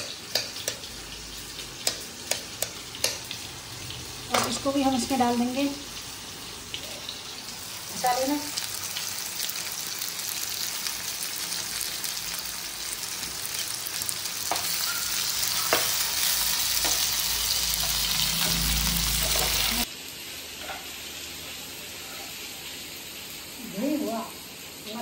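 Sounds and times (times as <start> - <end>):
metal spatula clicking against pan: 0.0 - 0.9, 1.8 - 3.3
vegetables sizzling in hot oil: 0.0 - 25.0.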